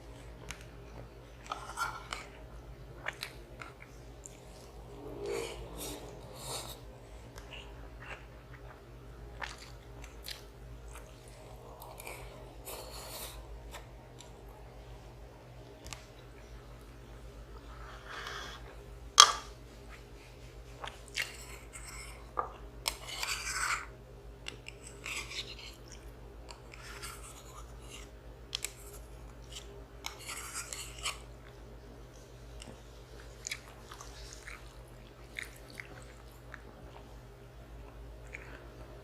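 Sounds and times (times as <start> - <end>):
person chewing food: 0.0 - 14.6, 20.7 - 37.2, 37.8 - 39.0.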